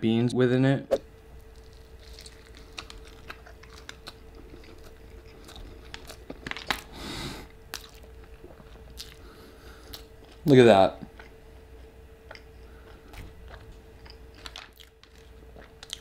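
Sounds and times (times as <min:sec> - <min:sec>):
faint steady hum: 0:00.0 - 0:16.0
close-up chewing: 0:01.4 - 0:07.0, 0:07.7 - 0:16.0.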